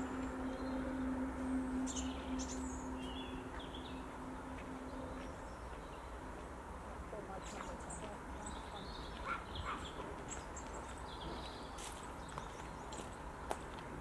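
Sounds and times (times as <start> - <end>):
steady low hum: 0.0 - 9.2
wild birds chirping: 0.0 - 13.3
outdoor background noise: 0.0 - 14.0.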